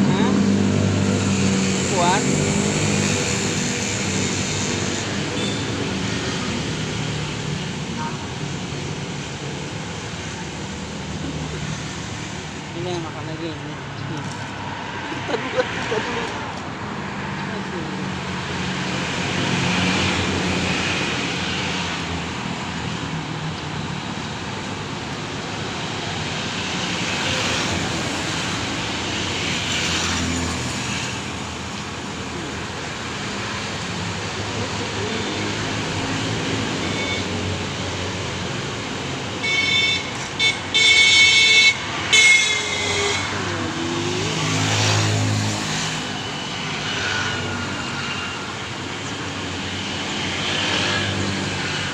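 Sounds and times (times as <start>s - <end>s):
road traffic passing: 0.0s - 51.9s
vehicle horn honking: 5.4s - 5.7s, 36.8s - 37.3s, 39.4s - 43.4s.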